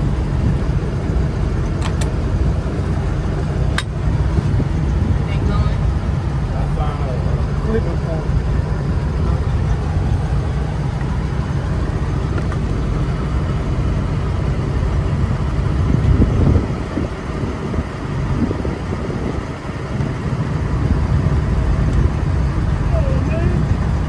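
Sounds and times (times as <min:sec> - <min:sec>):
vehicle engines rumbling: 0:00.0 - 0:24.0.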